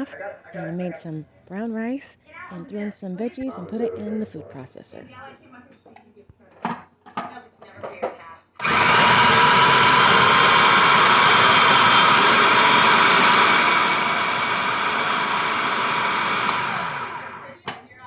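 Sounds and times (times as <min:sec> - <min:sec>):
food processor motor running: 0:08.6 - 0:17.6.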